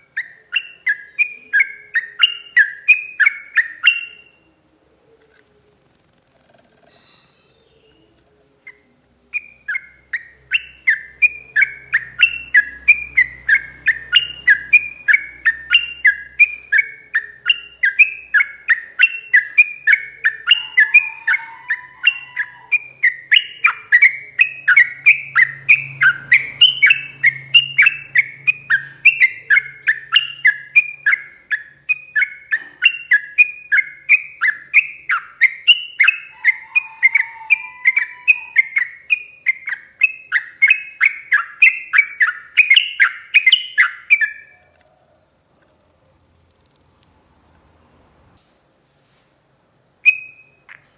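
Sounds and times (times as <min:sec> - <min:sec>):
bird singing chattering notes: 0:09.4 - 0:36.6.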